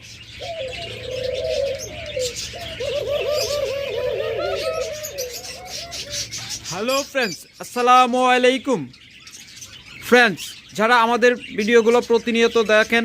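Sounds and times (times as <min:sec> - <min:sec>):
doves cooing: 0:00.0 - 0:07.4
small cage birds chirping: 0:00.0 - 0:13.0.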